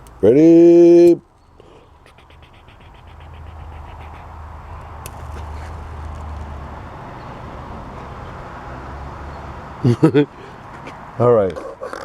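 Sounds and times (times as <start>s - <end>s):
toy car rolling on track: 3.4s - 7.0s.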